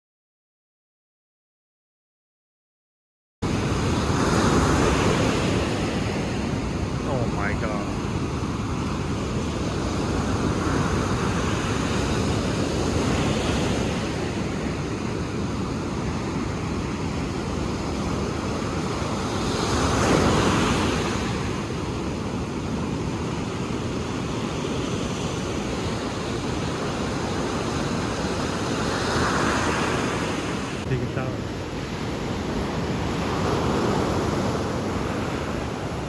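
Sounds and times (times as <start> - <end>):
ocean surf washing ashore: 3.4 - 36.0.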